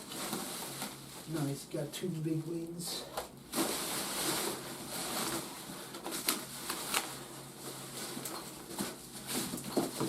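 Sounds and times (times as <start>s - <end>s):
packaging rustling: 3.5s - 10.0s.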